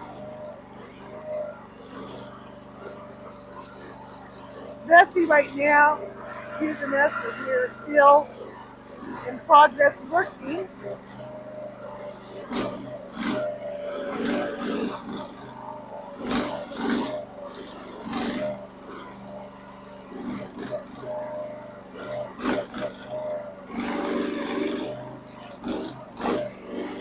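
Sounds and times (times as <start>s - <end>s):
excavator engine running: 0.0s - 27.0s
hydraulic whine: 0.0s - 27.0s.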